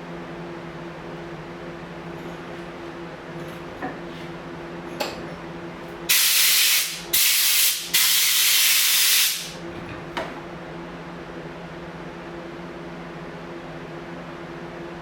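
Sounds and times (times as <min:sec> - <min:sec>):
steady low hum: 0:00.0 - 0:06.1
hissing spray bursts: 0:06.1 - 0:09.6.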